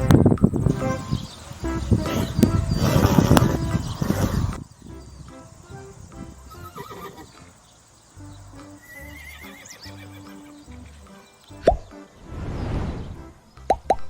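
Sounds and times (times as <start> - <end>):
quiet background music: 0.0 - 14.0
horse neighing: 2.0 - 4.6, 6.5 - 7.4, 8.8 - 10.6
faint hoof clip-clops: 2.0 - 7.6.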